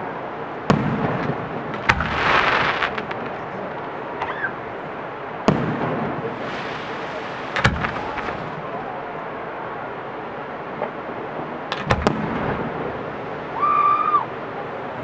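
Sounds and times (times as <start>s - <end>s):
firework shells booming: 0.6s - 3.9s, 5.4s - 8.6s, 11.7s - 13.0s.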